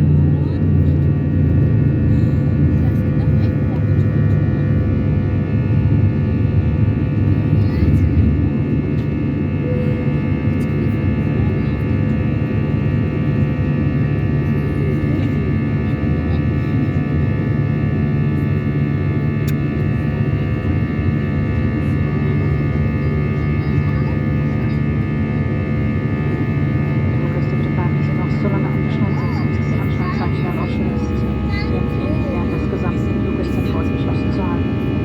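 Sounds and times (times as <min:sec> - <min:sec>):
airliner engines drone: 0:00.0 - 0:35.0
high whining engine tones: 0:07.5 - 0:12.8, 0:25.2 - 0:35.0.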